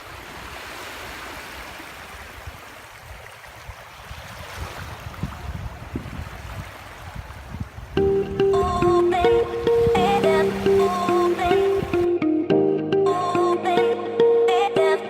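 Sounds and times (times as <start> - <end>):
sea water lapping at shore: 0.0 - 12.1
wind rumble on microphone: 2.4 - 10.1.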